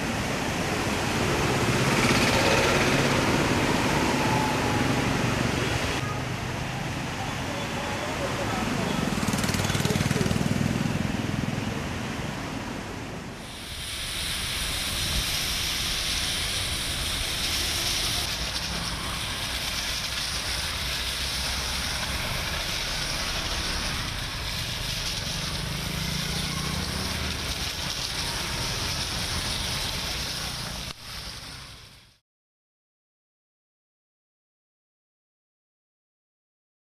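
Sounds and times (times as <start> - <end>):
rain hissing on wet road: 0.0 - 10.5, 13.4 - 32.2
vehicles driving through water: 0.0 - 31.9.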